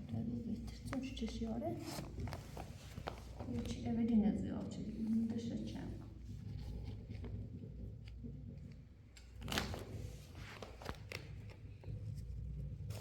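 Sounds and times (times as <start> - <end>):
small clicks and rustles: 6.3 - 13.0.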